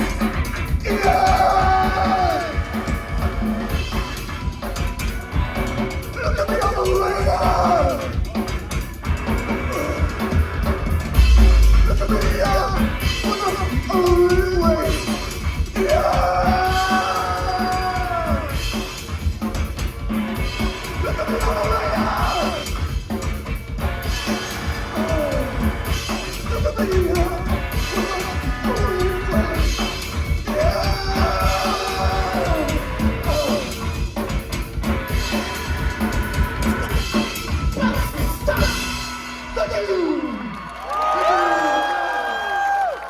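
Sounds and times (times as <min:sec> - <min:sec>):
heavy bass: 0:00.0 - 0:39.8
fast drum beat: 0:00.0 - 0:40.2
live rock band playing: 0:00.0 - 0:40.5
person yelling and singing: 0:00.8 - 0:02.6, 0:06.1 - 0:08.4, 0:11.8 - 0:15.1, 0:15.7 - 0:18.6, 0:21.0 - 0:22.7, 0:24.9 - 0:25.6, 0:26.4 - 0:33.8, 0:37.7 - 0:38.9.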